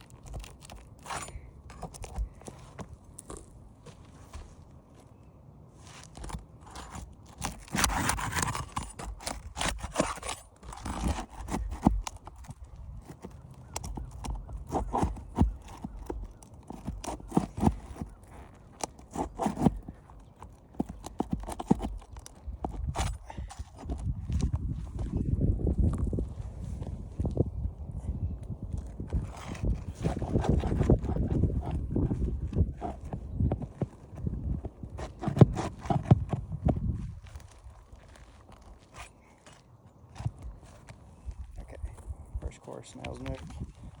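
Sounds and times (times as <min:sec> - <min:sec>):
scraping on roof shingles: 0:00.0 - 0:04.6, 0:05.8 - 0:25.0, 0:28.7 - 0:41.6
knocks and taps on roof shingles: 0:06.2 - 0:24.5.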